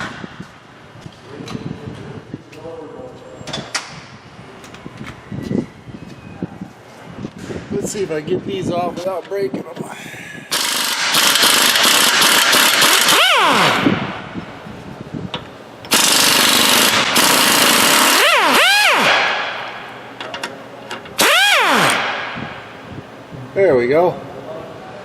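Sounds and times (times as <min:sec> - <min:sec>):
air motor whining: 0:10.4 - 0:14.9, 0:15.8 - 0:23.7
pneumatic impact wrench hammering: 0:10.5 - 0:14.1, 0:15.8 - 0:22.5.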